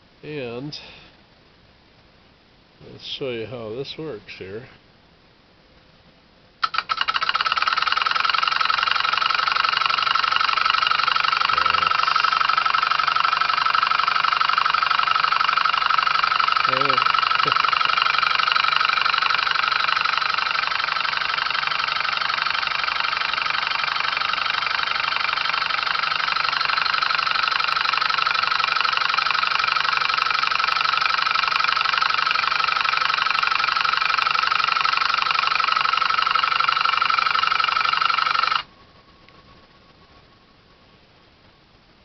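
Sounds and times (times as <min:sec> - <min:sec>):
electric motor running: 0:06.6 - 0:38.7.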